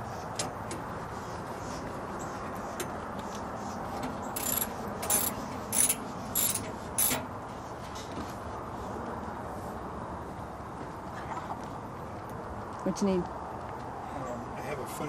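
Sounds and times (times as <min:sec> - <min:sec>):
steady background hum: 0:00.0 - 0:14.8
metallic clicking of hand tools: 0:04.4 - 0:07.2.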